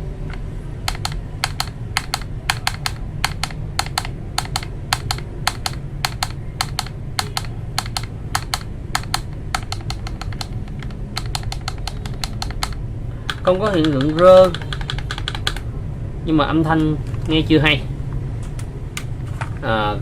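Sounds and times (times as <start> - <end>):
mechanical keyboard typing: 0.0 - 15.7.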